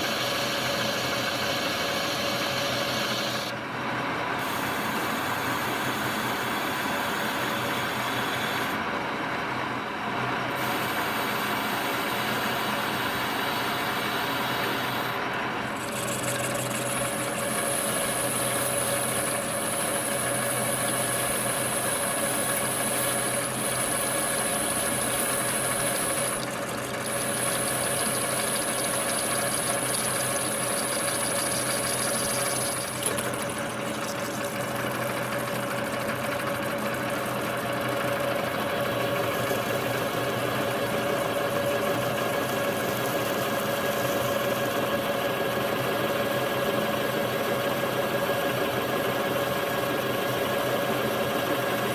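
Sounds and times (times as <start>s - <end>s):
metal lathe running: 10.6s - 45.1s.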